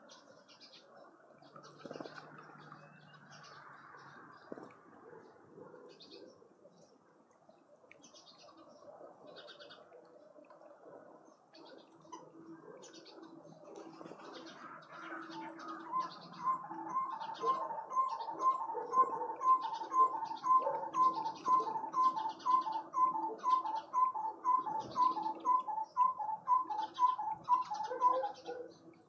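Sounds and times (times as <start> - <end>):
small birds chirping: 0.0 - 29.0
bird hooting: 15.0 - 28.7.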